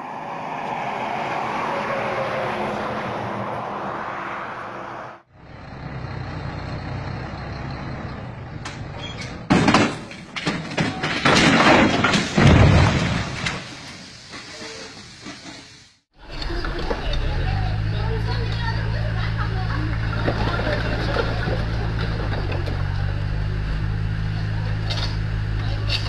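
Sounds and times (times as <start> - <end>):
deep engine rumble: 0.0 - 9.5, 16.2 - 26.0
heavy truck running: 0.0 - 26.0
loud bangs and crashes: 9.3 - 14.4.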